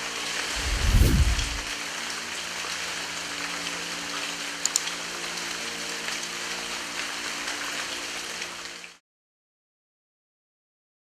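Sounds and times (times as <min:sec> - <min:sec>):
rain on a tiled roof: 0:00.0 - 0:00.6, 0:01.6 - 0:09.0.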